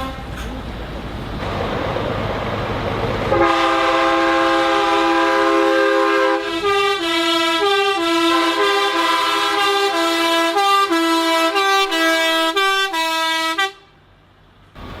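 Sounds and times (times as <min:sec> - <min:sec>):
musical truck air horn: 0:00.0 - 0:00.4, 0:03.3 - 0:13.9.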